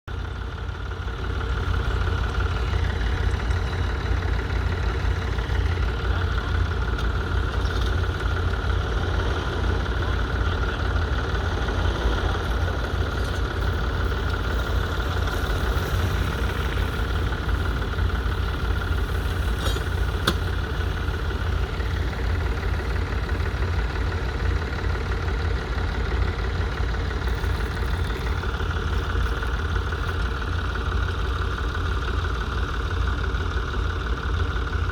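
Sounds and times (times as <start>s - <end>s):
tractor engine rumbling: 0.0s - 34.9s.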